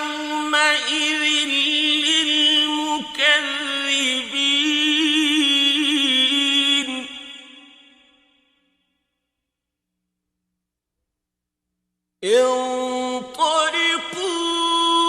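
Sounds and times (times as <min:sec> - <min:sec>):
man reciting in song: 0:00.0 - 0:07.9, 0:12.2 - 0:15.0.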